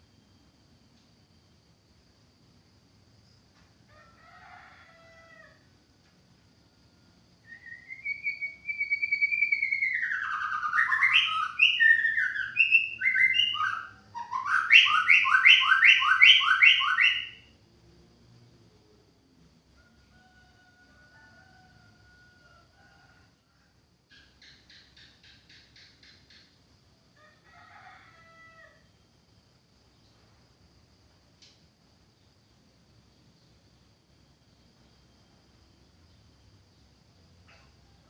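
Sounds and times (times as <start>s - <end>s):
bird singing whistled song: 7.4s - 17.5s.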